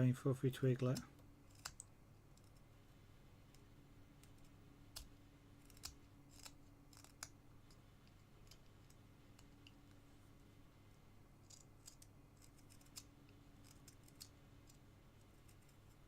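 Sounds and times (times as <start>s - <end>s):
low steady hum: 0.0s - 16.0s
carving knife cutting wood: 1.4s - 2.6s, 4.2s - 7.4s, 11.4s - 16.0s.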